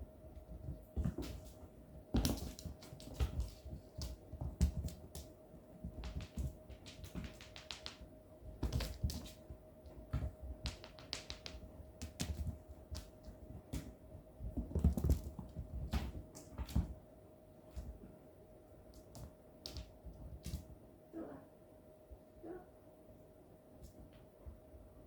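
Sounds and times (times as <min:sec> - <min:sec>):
paws thumping on floor: 0:00.3 - 0:17.1
cats playing with toy taps: 0:00.6 - 0:17.0, 0:18.9 - 0:20.7.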